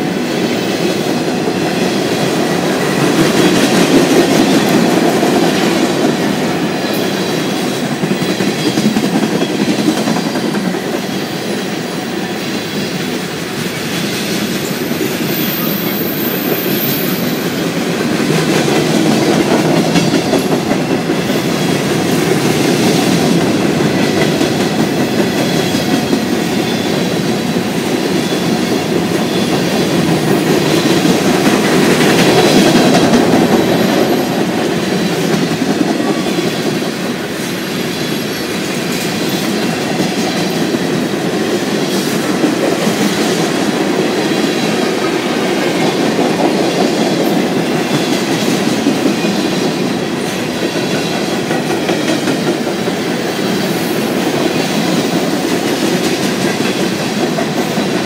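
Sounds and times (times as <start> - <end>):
steel wheels rumbling on rail: 0.0 - 58.0
faint high wheel squeal: 14.0 - 17.4.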